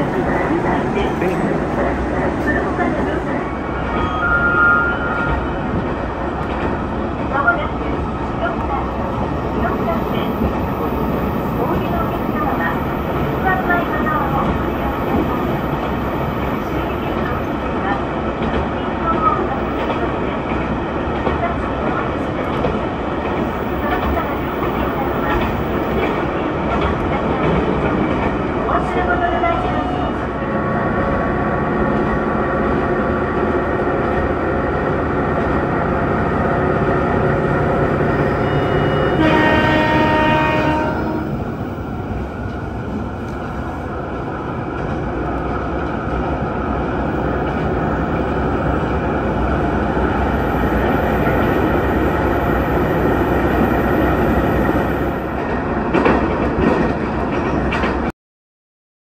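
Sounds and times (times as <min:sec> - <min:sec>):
train engine and wheel noise: 0:00.0 - 0:58.1
train horn: 0:38.2 - 0:41.4.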